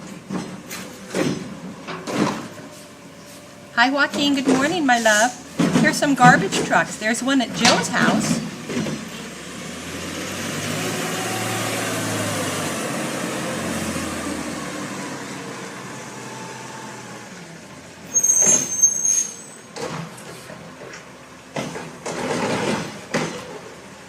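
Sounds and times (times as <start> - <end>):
garbage truck engine running: 0.0 - 24.0
high-pitched squeal with hiss: 18.1 - 19.7.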